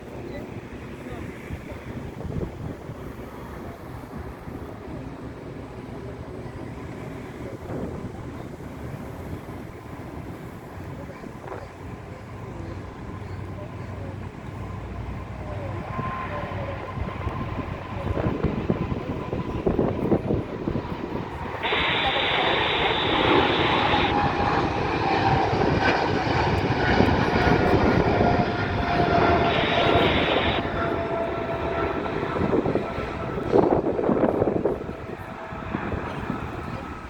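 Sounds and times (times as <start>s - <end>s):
jet engines roaring: 0.0s - 37.0s
bursts of hiss: 21.6s - 24.1s.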